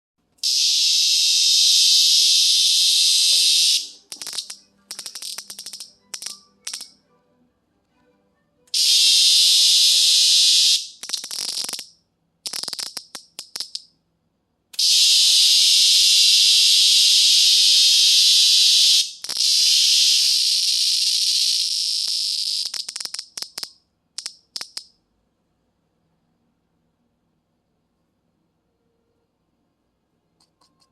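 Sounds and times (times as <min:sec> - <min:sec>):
cicada buzzing: 0:00.4 - 0:06.9, 0:08.8 - 0:13.8, 0:14.8 - 0:24.8.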